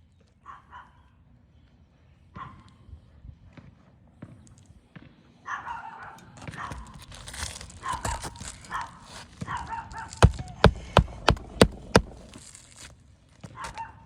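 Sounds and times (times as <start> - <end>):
dog barking: 0.4 - 1.1, 2.4 - 2.7, 5.5 - 7.0, 7.8 - 12.4, 13.6 - 14.0
shingles scraping and crinkling: 6.4 - 13.9.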